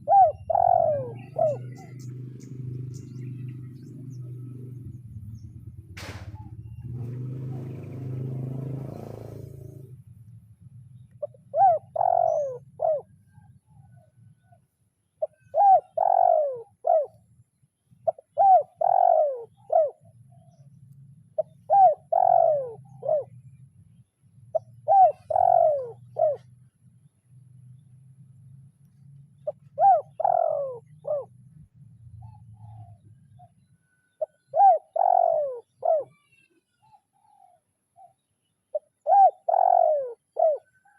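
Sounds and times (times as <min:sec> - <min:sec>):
dove cooing: 0:00.0 - 0:05.0, 0:11.0 - 0:17.4, 0:18.0 - 0:26.7, 0:29.4 - 0:40.9.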